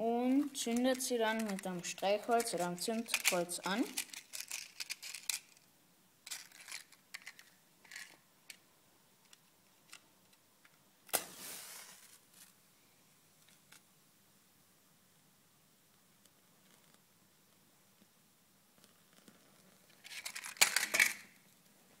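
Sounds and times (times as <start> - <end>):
match struck flaring with hiss: 11.1 - 12.2.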